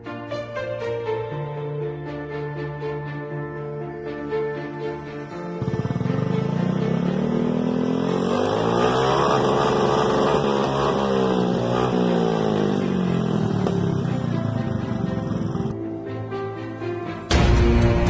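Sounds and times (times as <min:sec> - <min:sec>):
scooter engine revving: 0:05.6 - 0:15.8.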